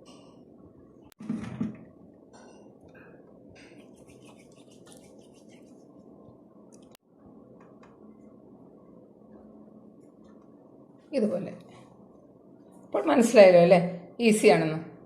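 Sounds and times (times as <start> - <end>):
steady low hum: 0.0 - 15.0
hands shaping dough: 3.6 - 6.2.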